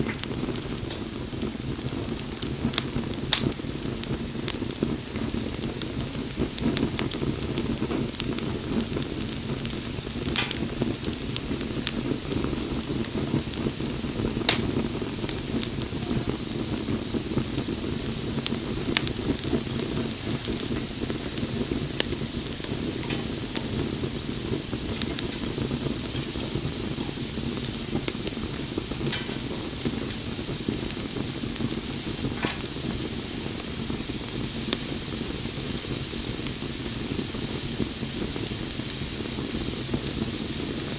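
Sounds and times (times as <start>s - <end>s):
bonfire crackling and popping: 0.0s - 40.9s.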